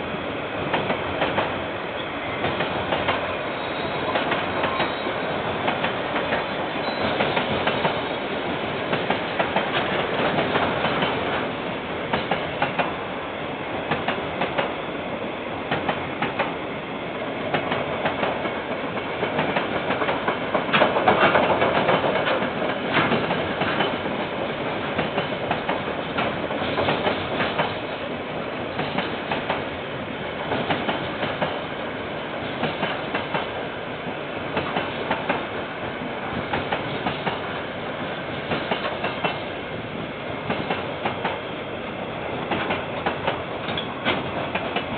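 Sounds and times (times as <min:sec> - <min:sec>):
train wheels clacking on rails: 0:00.6 - 0:13.1, 0:13.8 - 0:14.8, 0:15.6 - 0:16.7, 0:17.4 - 0:44.9.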